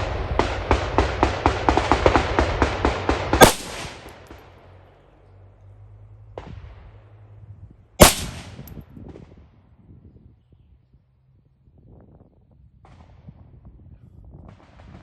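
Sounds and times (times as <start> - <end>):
rapid gunfire: 1.2 - 4.2, 8.0 - 8.7
single gunshots echoing: 3.4 - 4.2, 8.0 - 8.7.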